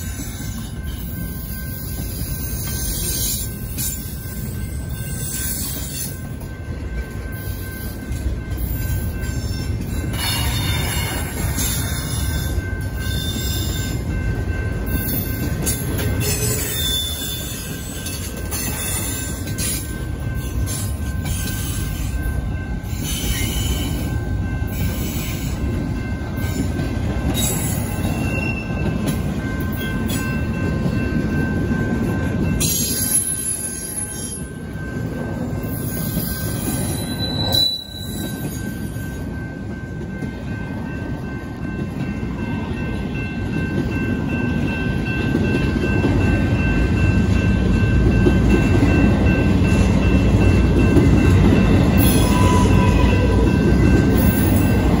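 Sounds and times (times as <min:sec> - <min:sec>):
high wheel squeals: 0:35.9 - 0:38.9.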